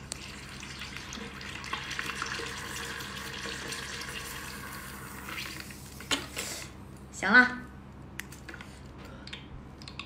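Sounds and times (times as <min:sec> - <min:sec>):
hot oil sizzling and bubbling: 0:00.0 - 0:06.0.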